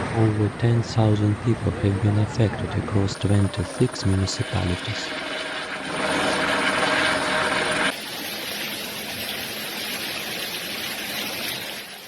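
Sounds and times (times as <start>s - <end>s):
rushing noise: 0.0s - 8.0s
engine drone: 0.0s - 9.8s.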